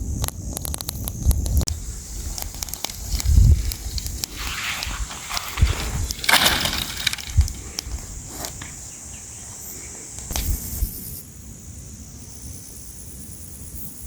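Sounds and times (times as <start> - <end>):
steady high hiss: 0.0 - 14.0
sharp clicks: 0.2 - 8.8
rustling: 1.7 - 10.8.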